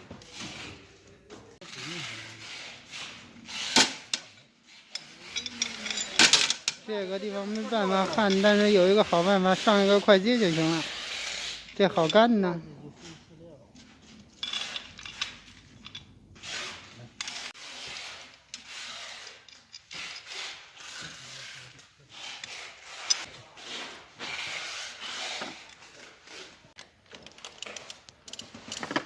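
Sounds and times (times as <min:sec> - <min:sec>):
rough scraping on pipe: 0:01.6 - 0:06.2, 0:06.8 - 0:12.4, 0:16.4 - 0:26.7.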